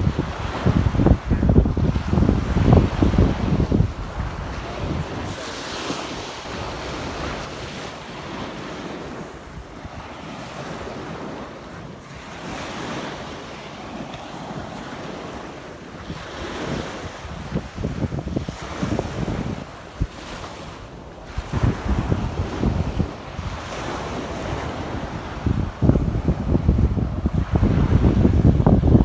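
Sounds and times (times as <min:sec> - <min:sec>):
surf washing onto beach: 0:00.0 - 0:29.0
wind buffeting microphone: 0:00.0 - 0:29.0.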